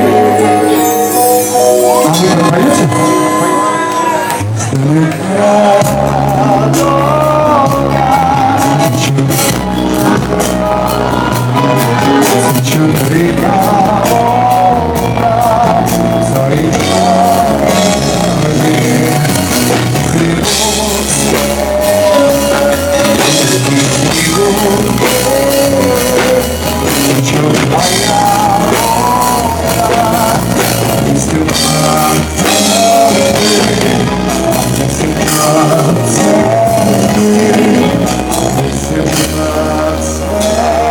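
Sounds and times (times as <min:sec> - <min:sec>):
person singing wavering melody: 0:00.0 - 0:04.3
pop band accompaniment: 0:00.0 - 0:40.9.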